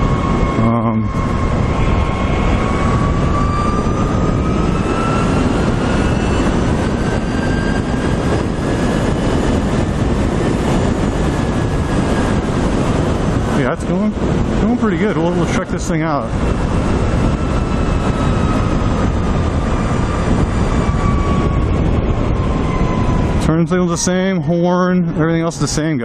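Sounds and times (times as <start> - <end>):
electric motor whine: 0.0 - 13.3
wind rush on microphone: 0.0 - 26.0.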